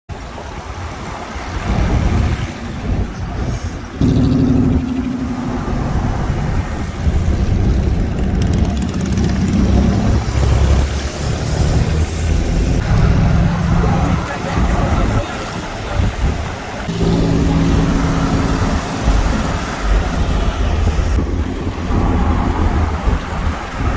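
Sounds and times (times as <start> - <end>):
car engines cruising by: 0.4 - 23.9.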